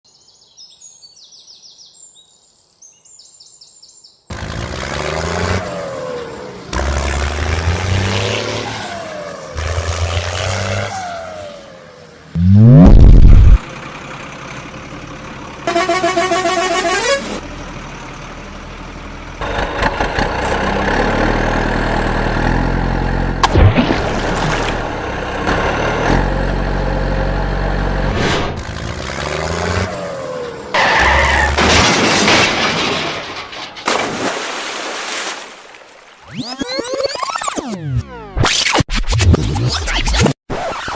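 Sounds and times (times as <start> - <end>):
heavy diesel engine running: 12.1 - 30.8
truck horn blaring: 15.6 - 17.4.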